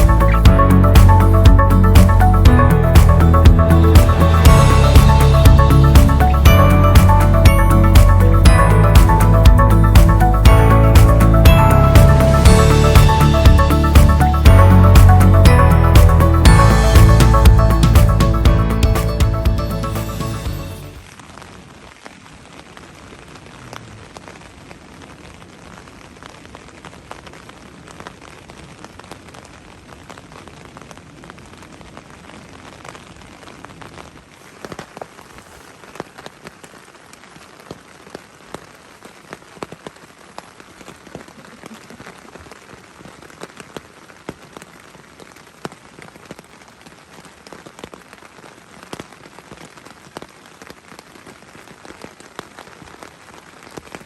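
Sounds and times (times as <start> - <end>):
low rumble: 0.0 - 20.2
rain falling: 0.0 - 54.0
raindrops ticking on a surface: 21.0 - 54.0.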